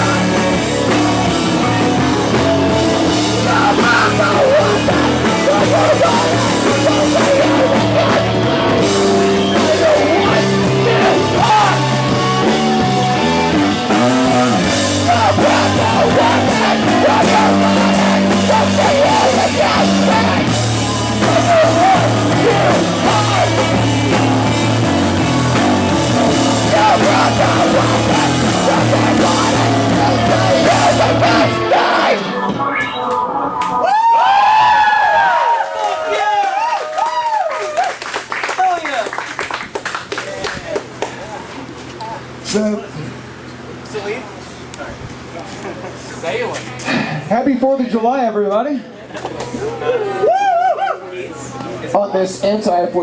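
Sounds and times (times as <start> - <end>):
person singing: 0.0 - 33.6
live rock band playing: 0.0 - 33.8
drums: 0.0 - 42.4.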